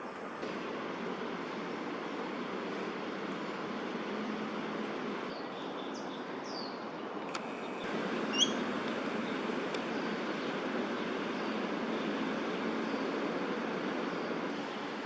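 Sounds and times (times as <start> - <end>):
city traffic hum: 0.0 - 15.0
short high bird calls: 8.2 - 8.8.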